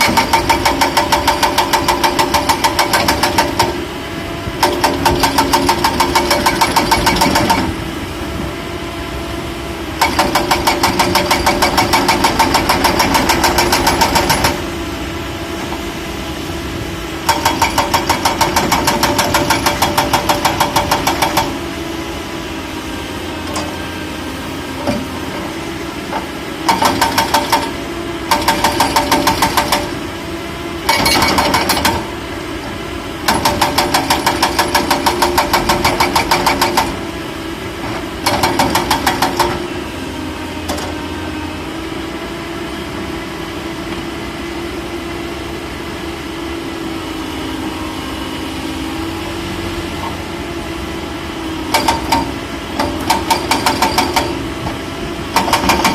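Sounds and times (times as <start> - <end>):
excavator diesel engine running: 0.0 - 55.9
rapid loud hammering: 10.0 - 14.6.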